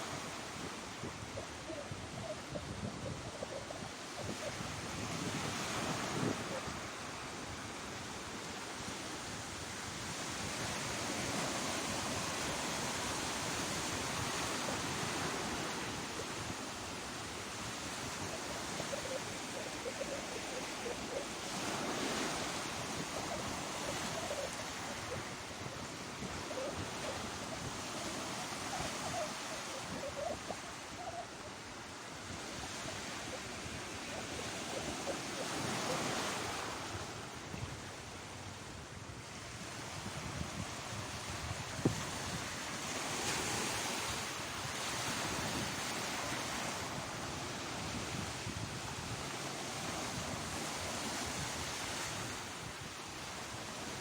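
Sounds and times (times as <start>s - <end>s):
sea waves breaking on shore: 0.0s - 54.0s
wind buffeting microphone: 0.1s - 7.6s, 9.2s - 31.6s, 39.1s - 52.3s.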